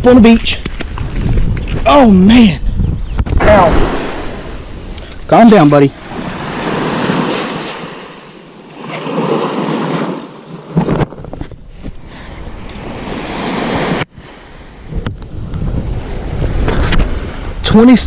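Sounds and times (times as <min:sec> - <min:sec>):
wind buffeting microphone: 0:00.0 - 0:18.0
surf washing onto beach: 0:05.3 - 0:10.9, 0:12.9 - 0:17.6.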